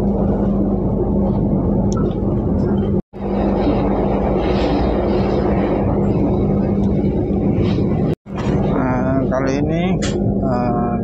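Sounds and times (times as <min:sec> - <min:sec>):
low hum: 0:00.0 - 0:11.0
train wheels rumbling on track: 0:00.0 - 0:11.0.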